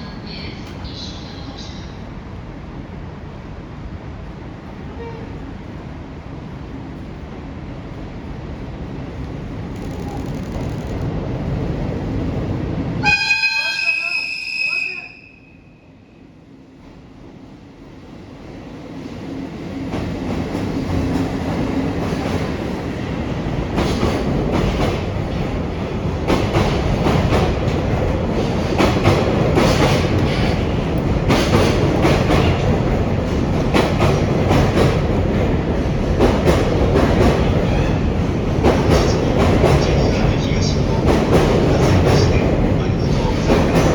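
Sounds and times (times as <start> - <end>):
freight train heavy rumble: 0.0 - 43.9.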